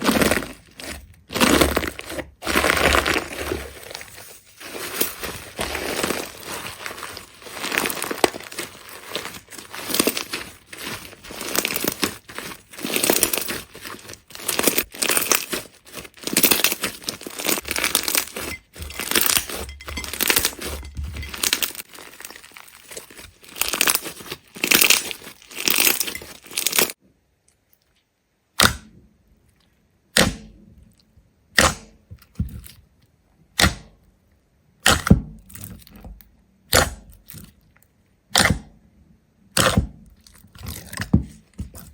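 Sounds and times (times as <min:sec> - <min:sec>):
brittle crunching and crackling: 0:00.0 - 0:27.0, 0:39.6 - 0:41.9.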